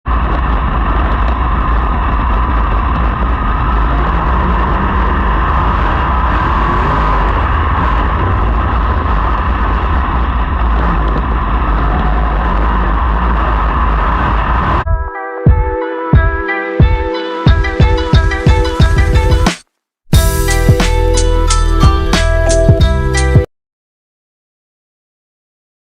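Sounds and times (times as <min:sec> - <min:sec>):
racing car engines: 0:00.1 - 0:14.8.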